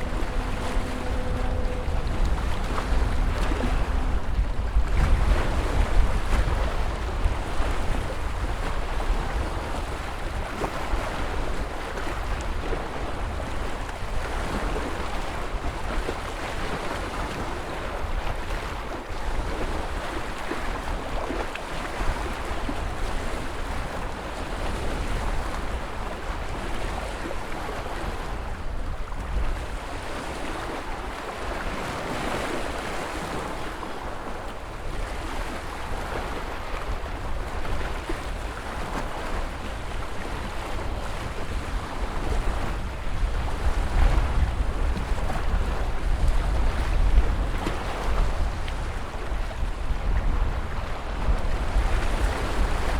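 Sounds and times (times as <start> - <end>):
deep low surf rumble: 0.0 - 9.4
waves breaking: 0.0 - 52.9.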